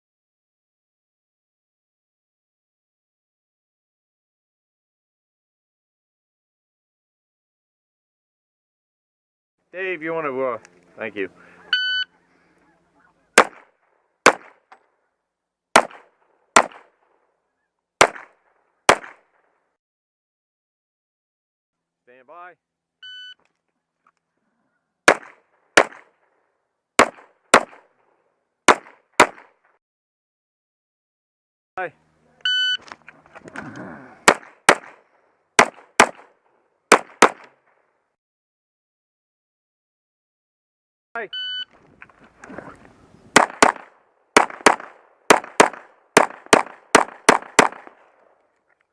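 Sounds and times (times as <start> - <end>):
pistol shots: 13.4 - 14.7, 15.7 - 17.0, 18.0 - 19.3, 25.1 - 26.2, 27.0 - 27.9, 28.7 - 29.6, 34.2 - 37.6, 43.4 - 48.3
shot timer beep: 23.0 - 23.4, 32.4 - 32.8, 41.4 - 41.7.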